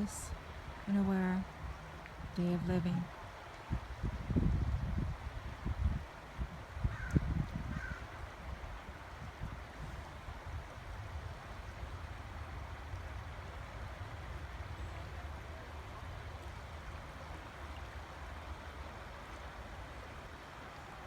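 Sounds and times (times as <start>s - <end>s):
wind on microphone: 0.0s - 12.2s
river water flowing: 0.0s - 21.0s.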